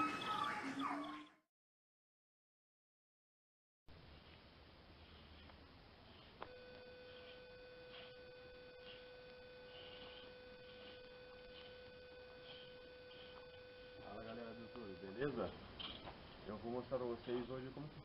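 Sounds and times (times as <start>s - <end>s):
faint electrical hum: 3.9s - 18.0s.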